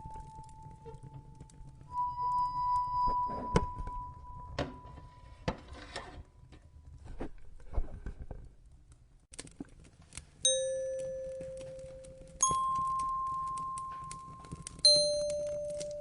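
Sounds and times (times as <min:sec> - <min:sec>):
wood fire crackling and popping: 0:00.0 - 0:02.3, 0:06.8 - 0:16.0
bell-like note: 0:01.9 - 0:04.7, 0:10.5 - 0:16.0
chime note: 0:10.5 - 0:16.0.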